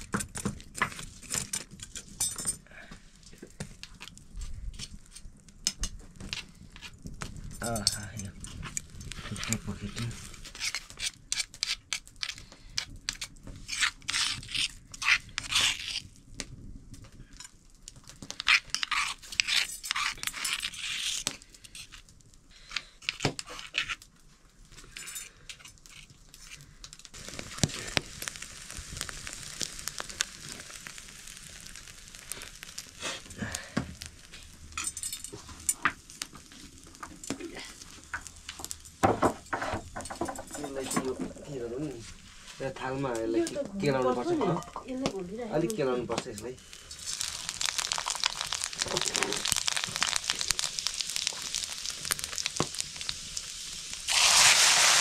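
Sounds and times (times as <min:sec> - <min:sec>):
kitchen scraping and crackling: 0:00.0 - 0:55.0
food frying in hot oil: 0:18.2 - 0:22.0, 0:24.8 - 0:44.3, 0:45.0 - 0:55.0.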